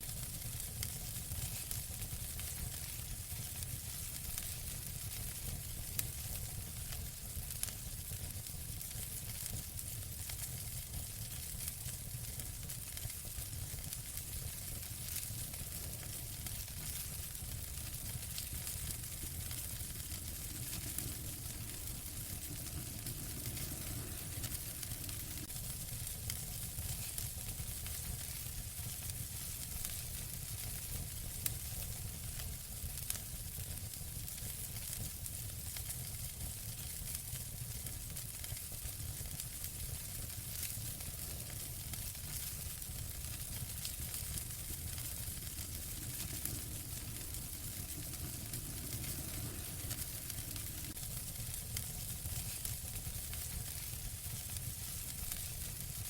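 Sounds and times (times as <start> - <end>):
wood fire crackling and hissing: 0.0 - 56.0
low rumble: 16.8 - 25.6, 43.7 - 52.1.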